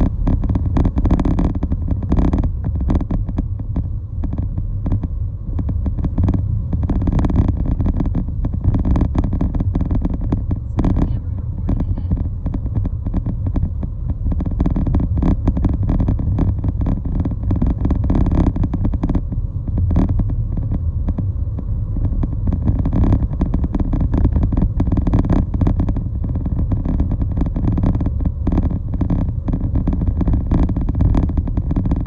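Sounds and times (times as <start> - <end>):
moving vehicle rumble: 0.0 - 32.0
rapid irregular buffeting: 0.0 - 32.0.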